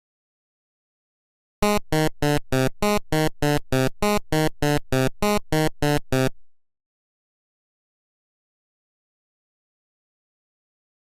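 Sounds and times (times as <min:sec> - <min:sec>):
short low synthesizer notes: 0:01.6 - 0:06.3.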